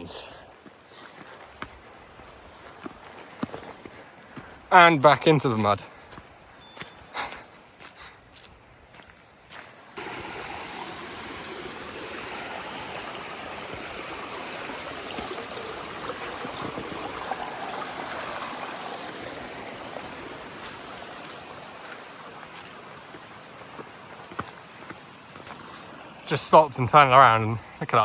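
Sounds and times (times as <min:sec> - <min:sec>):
stream rushing over rocks: 0:10.0 - 0:28.0.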